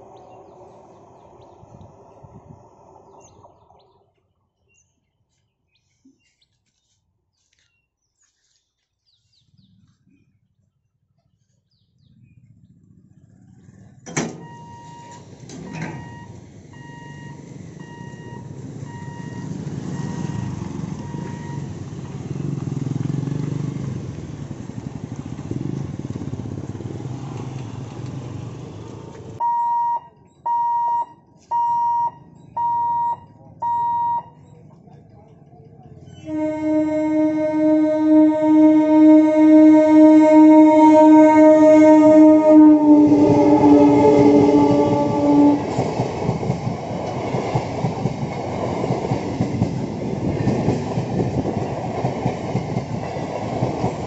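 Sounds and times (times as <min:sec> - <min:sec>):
electric train rumbling on rails: 0:00.0 - 0:04.2, 0:13.0 - 0:29.5, 0:32.3 - 0:54.0
level-crossing warning beeps: 0:14.4 - 0:21.8, 0:29.4 - 0:34.6.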